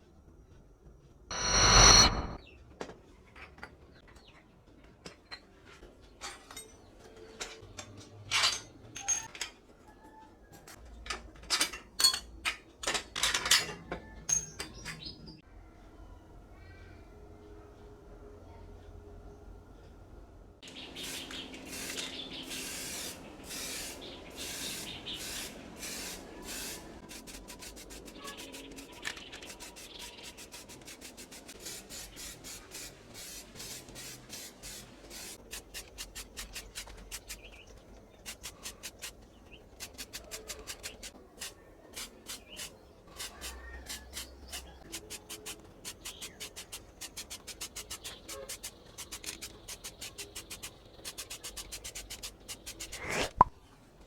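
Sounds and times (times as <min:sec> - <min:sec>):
hand sanding strokes: 0:21.0 - 0:37.6, 0:38.2 - 0:53.3.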